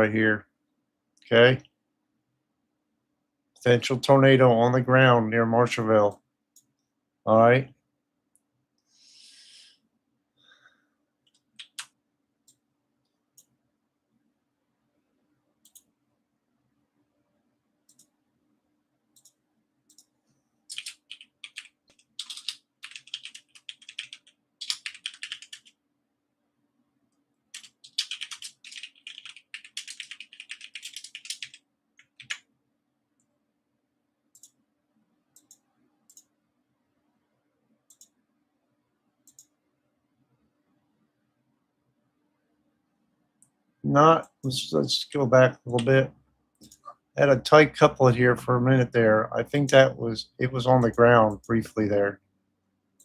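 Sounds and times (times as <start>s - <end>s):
faint low hum: 9.8s - 53.0s
computer keyboard typing: 11.3s - 12.6s, 20.7s - 25.8s, 27.5s - 32.5s, 45.7s - 45.9s
mouse clicks: 35.4s - 36.3s, 37.9s - 38.2s, 39.2s - 39.5s.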